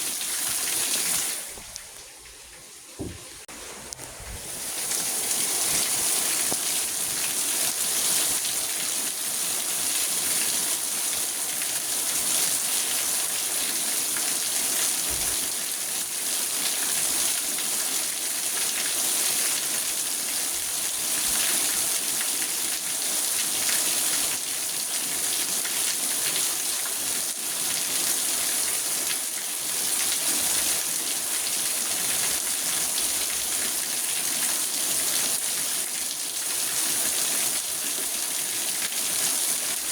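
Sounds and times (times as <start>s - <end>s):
rain on a car roof: 3.0s - 26.4s.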